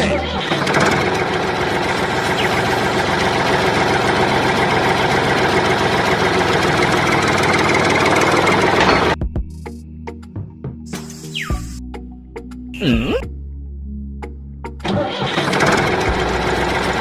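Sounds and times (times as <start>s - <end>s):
diesel engine idling: 0.0s - 8.8s.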